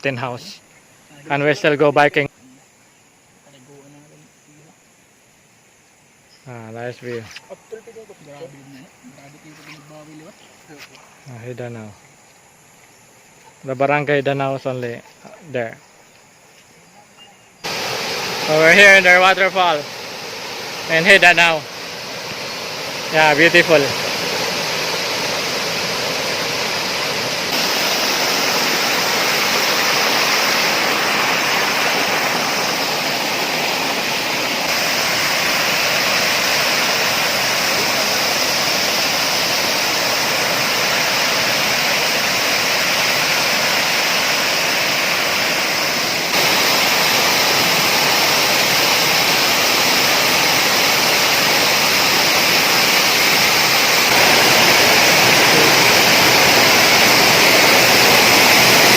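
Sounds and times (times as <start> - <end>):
waterfall roaring: 17.6 - 58.9.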